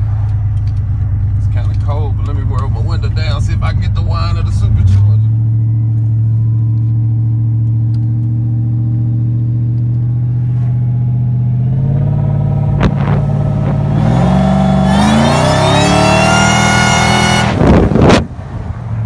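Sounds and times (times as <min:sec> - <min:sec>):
engine running and accelerating: 0:00.0 - 0:19.0
supercharger high-pitched whine: 0:11.2 - 0:18.2.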